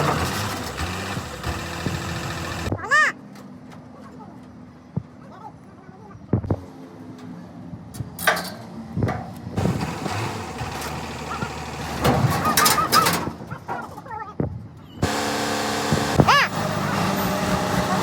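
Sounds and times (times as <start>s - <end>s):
noisy clatter: 0.0s - 2.8s, 8.2s - 14.2s
faint engine hum: 0.0s - 13.0s.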